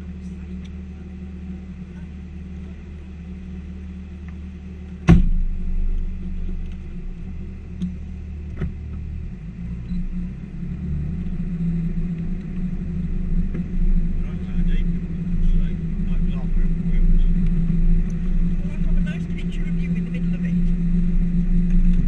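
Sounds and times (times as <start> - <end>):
engine rumbling: 0.0 - 22.0
sharp knock: 5.1 - 5.5.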